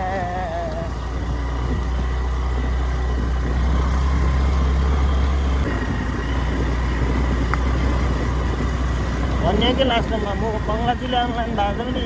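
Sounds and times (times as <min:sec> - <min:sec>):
motor scooter engine drone: 0:00.0 - 0:12.0.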